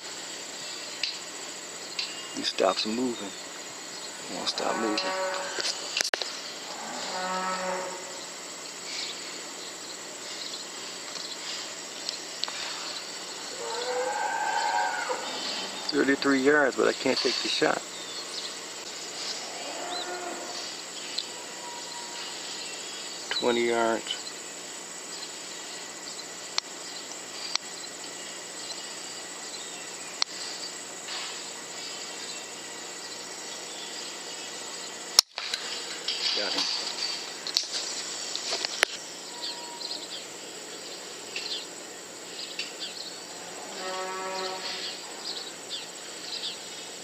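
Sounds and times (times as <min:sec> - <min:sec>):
high-pitched insect drone: 0:00.0 - 0:47.0
cow mooing: 0:04.3 - 0:05.8, 0:06.6 - 0:08.2, 0:13.5 - 0:16.4, 0:19.3 - 0:20.7, 0:21.4 - 0:22.2, 0:43.4 - 0:45.0.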